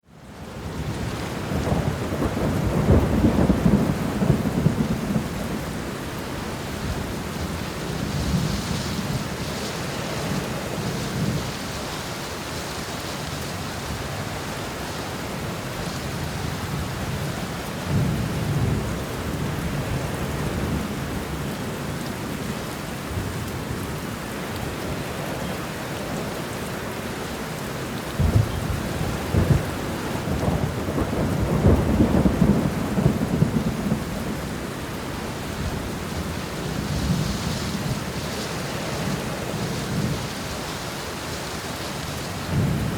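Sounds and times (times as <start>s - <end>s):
steady rain: 0.0s - 42.9s
rolling thunder: 0.6s - 11.6s, 28.2s - 40.4s.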